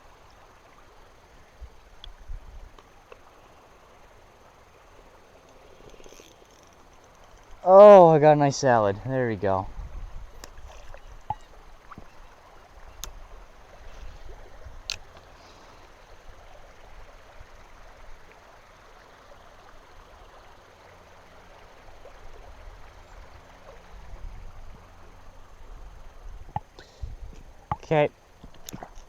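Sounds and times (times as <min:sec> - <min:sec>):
flowing river water: 0:00.0 - 0:29.0.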